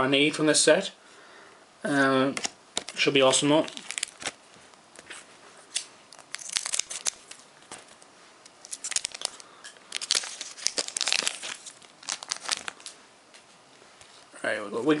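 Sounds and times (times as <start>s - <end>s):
foil wrapper crinkling and tearing: 2.8s - 4.4s, 5.7s - 7.5s, 8.5s - 13.0s
cards being handled: 3.6s - 4.4s, 5.0s - 13.0s.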